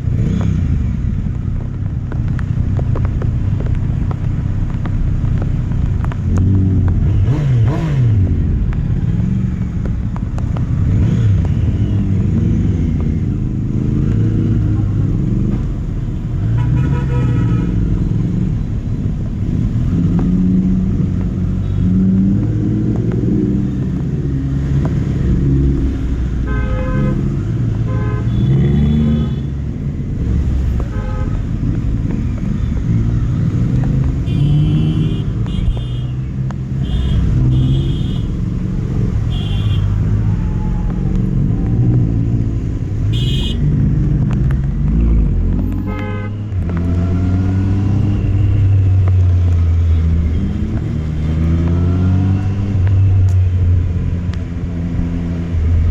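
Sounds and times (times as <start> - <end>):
vehicle horns tooting: 34.2 - 38.4, 39.3 - 40.0, 43.1 - 43.7, 45.8 - 46.5.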